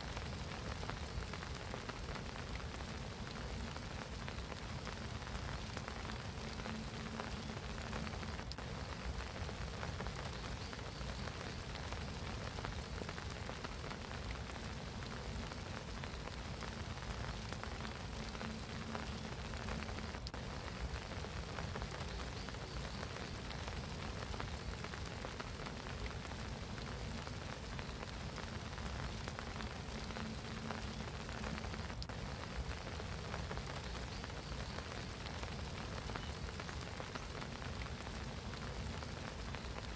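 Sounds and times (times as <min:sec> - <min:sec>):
rain pattering on water: 0:00.0 - 0:39.9.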